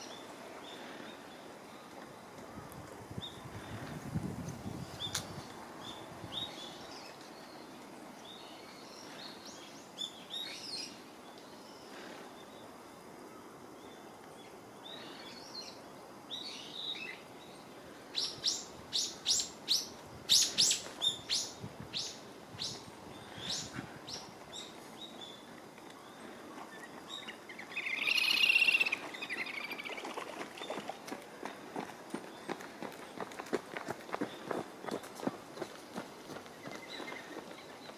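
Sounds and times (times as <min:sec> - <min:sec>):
bird chirping: 0:26.7 - 0:31.0
bird warbling call: 0:27.2 - 0:30.8.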